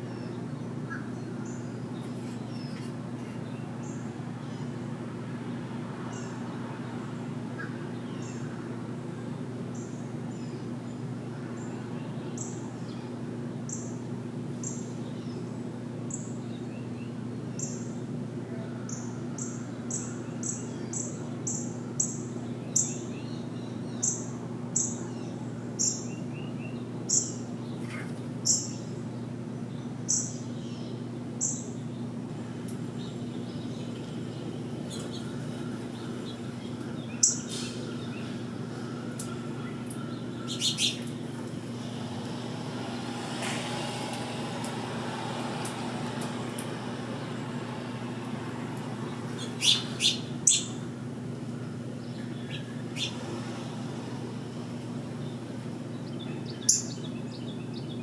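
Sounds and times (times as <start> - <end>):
steady low hum: 0.0 - 58.0
wild bird chirping: 33.0 - 43.0, 48.9 - 58.0.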